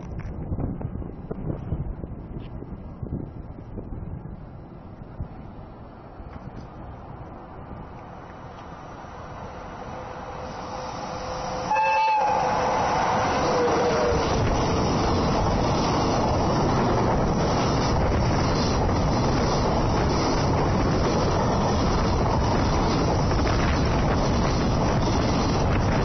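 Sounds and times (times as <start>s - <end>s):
locomotive horn: 11.2s - 14.4s.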